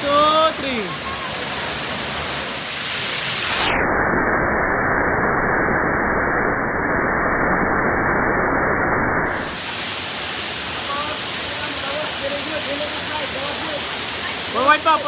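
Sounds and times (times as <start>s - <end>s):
falling water rushing: 0.0s - 3.7s, 9.3s - 15.0s
muffled underwater water sound: 0.0s - 15.0s.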